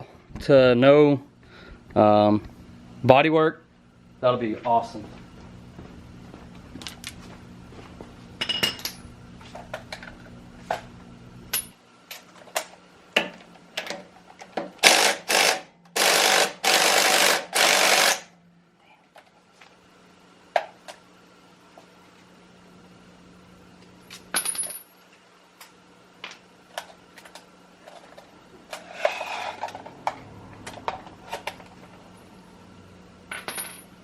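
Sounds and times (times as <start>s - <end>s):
impact wrench bursts: 14.8s - 18.3s.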